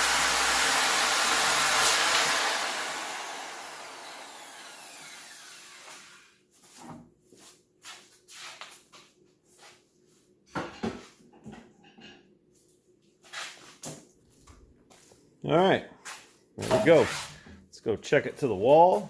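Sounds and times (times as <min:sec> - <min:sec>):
circular saw spinning down: 0:00.0 - 0:06.3
knocks and rustles of handling: 0:06.6 - 0:15.2.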